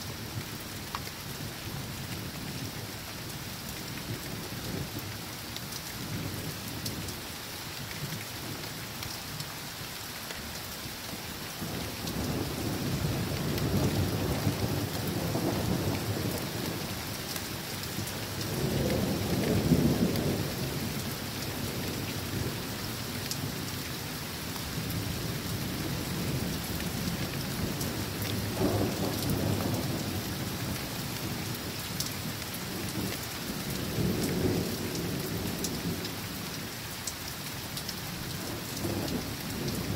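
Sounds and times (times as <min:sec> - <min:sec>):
steady rain falling: 0:00.0 - 0:39.9
thunder rumbling: 0:25.1 - 0:31.5.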